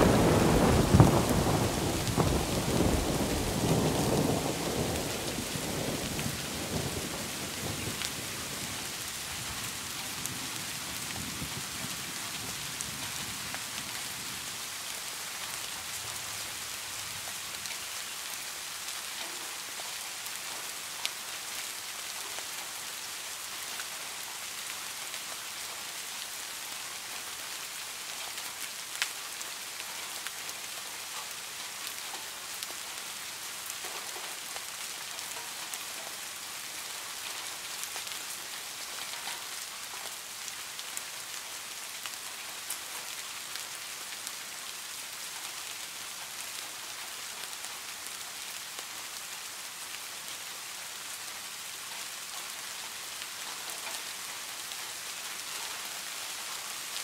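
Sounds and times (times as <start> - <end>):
low rumble of thunder: 0.0 - 9.0
steady rain falling: 0.0 - 57.0.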